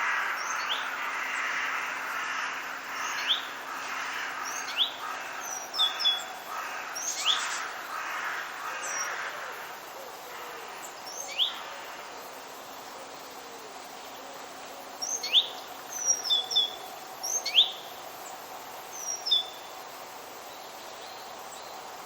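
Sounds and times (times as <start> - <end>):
steady background hiss: 0.0 - 22.0
birds rising whistles: 4.4 - 7.8, 10.8 - 11.7, 15.0 - 18.4, 19.0 - 19.7.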